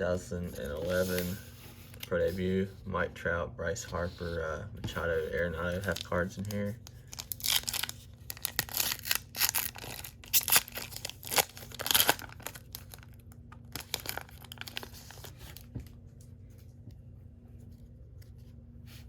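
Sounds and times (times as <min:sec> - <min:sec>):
cards rustling: 0:00.4 - 0:02.7, 0:03.9 - 0:16.8
wrapper tearing and crinkling: 0:05.8 - 0:15.7.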